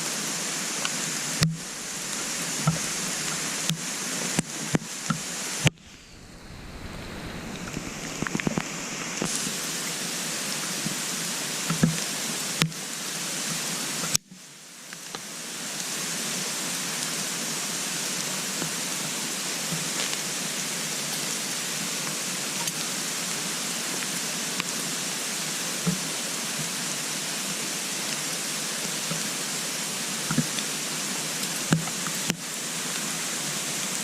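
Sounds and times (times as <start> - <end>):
wood fire hissing: 0.0 - 13.8
fire crackles and pops: 1.4 - 9.7.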